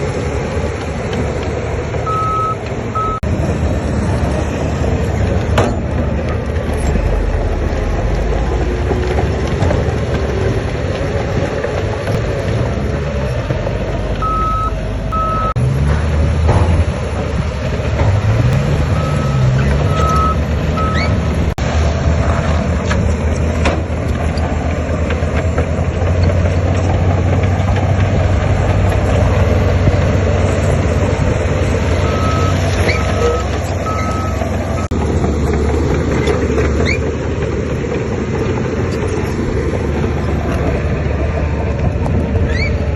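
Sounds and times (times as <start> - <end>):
diesel machinery running: 0.0 - 42.9
reversing alarm beeps: 2.1 - 3.2, 14.2 - 15.6, 18.9 - 21.2, 32.0 - 32.6, 33.2 - 34.9.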